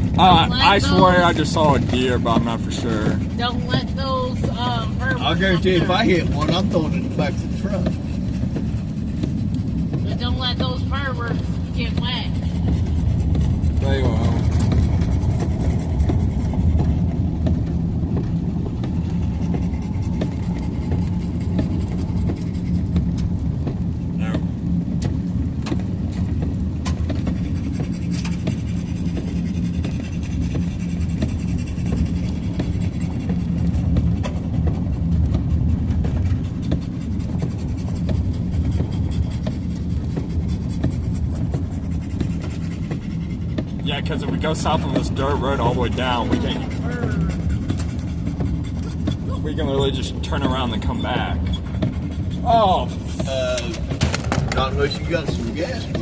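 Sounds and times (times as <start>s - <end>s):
pickup truck rumble from inside cab: 0.0s - 56.0s
raindrops ticking on truck: 5.8s - 45.2s.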